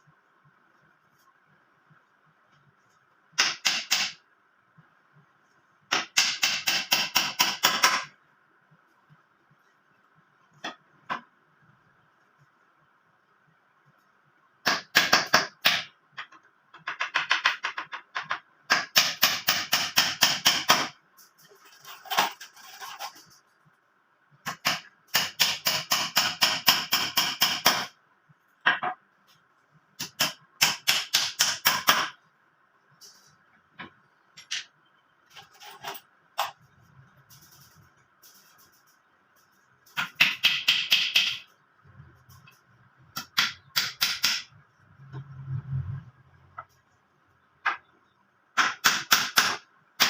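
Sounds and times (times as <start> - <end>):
faint steady hum: 0.0 - 50.0
hammer tapping nails: 3.4 - 4.2, 5.9 - 8.1, 14.7 - 20.9, 30.0 - 32.2, 40.0 - 41.5, 43.2 - 44.5.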